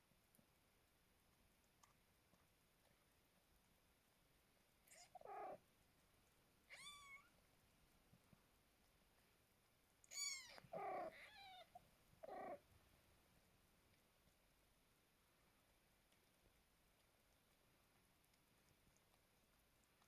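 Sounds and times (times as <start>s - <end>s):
newborn kittens mewing: 4.8s - 5.6s, 6.7s - 7.3s, 10.1s - 12.6s.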